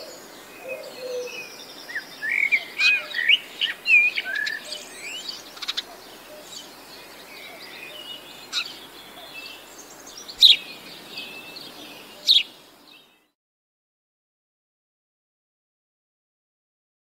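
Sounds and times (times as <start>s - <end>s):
songbirds singing and chirping: 0.0s - 13.4s.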